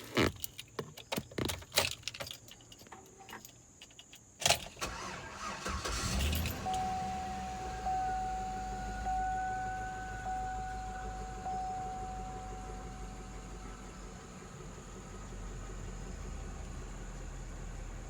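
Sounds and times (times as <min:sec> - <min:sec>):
keys jangling and clicking: 0:00.2 - 0:04.8, 0:06.2 - 0:06.6
car engine cranking and idling: 0:04.4 - 0:18.0
electronic warning chime: 0:06.6 - 0:13.1.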